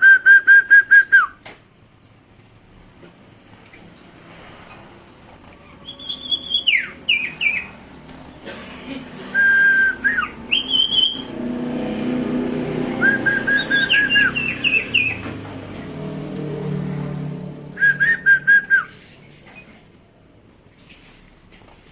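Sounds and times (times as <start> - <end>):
songbird whistling: 5.8 - 7.7, 9.4 - 11.3, 13.0 - 15.2, 17.8 - 19.0.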